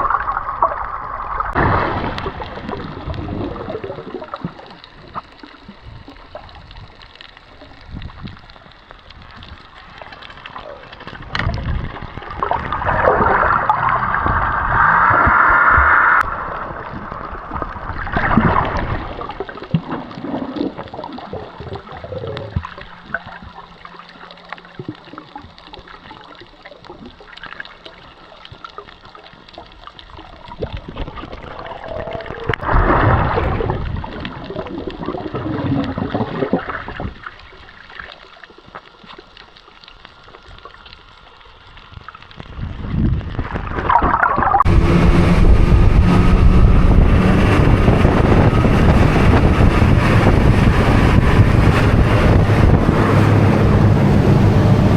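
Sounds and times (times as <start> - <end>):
water sloshing and gurgling: 0.0 - 54.9
loud rushing noise: 44.7 - 54.9.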